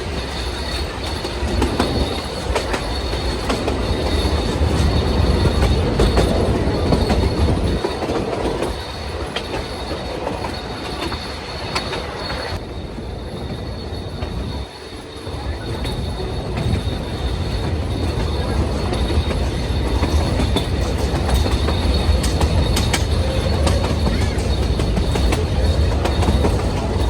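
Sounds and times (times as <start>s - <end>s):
train low rumble: 0.0s - 27.0s
train wheel squeal: 0.0s - 27.0s
wheels clicking over track: 14.2s - 27.0s.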